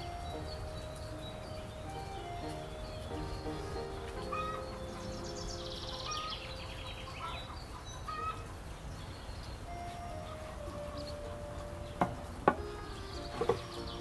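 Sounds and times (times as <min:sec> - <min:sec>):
falling bird trill: 0:00.0 - 0:08.4
small birds chirping: 0:00.0 - 0:14.0.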